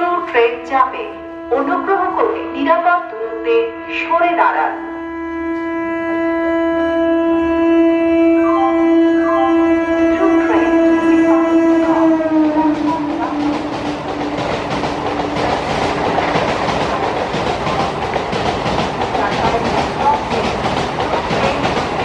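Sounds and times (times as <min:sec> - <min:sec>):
train horn: 0:00.0 - 0:22.0
train wheels rattling over rail joints: 0:11.8 - 0:22.0.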